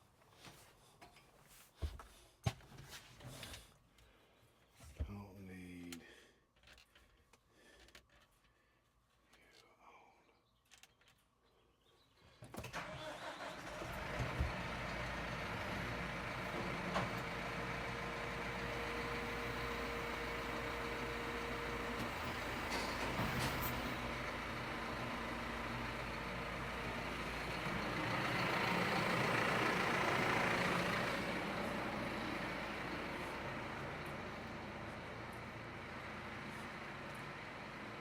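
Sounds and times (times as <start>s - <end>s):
tractor engine running: 12.7s - 38.0s.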